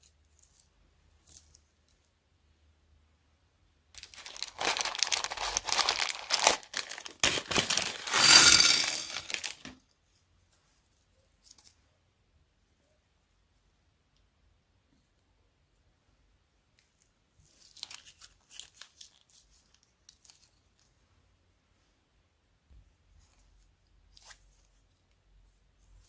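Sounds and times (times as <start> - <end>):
plastic bag crinkling: 4.0 - 9.7.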